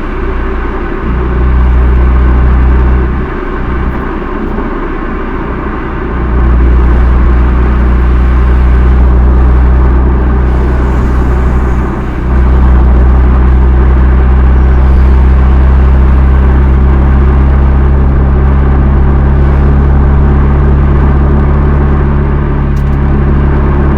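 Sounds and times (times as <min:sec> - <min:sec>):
car exhaust drone: 0:00.0 - 0:23.9.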